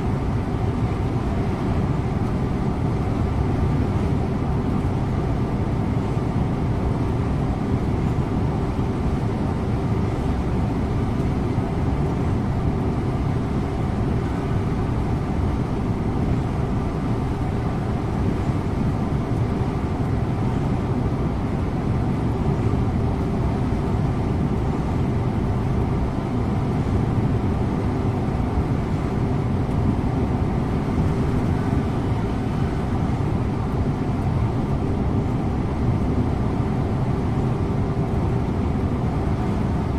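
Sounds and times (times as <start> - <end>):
bus engine hum: 0.0 - 39.9
road and tyre noise: 0.0 - 39.9.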